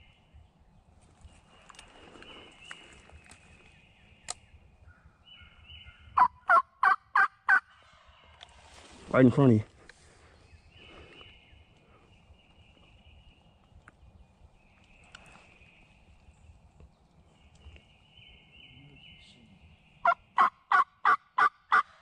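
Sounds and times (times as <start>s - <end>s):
wild turkey calling: 4.2s - 8.4s, 20.0s - 22.0s.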